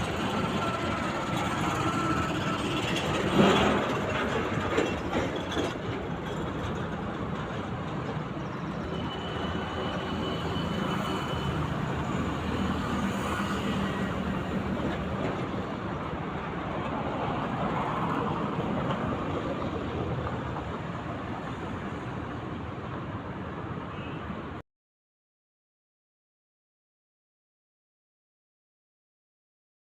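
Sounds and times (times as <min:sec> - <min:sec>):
running vehicle hum: 0:00.0 - 0:24.6.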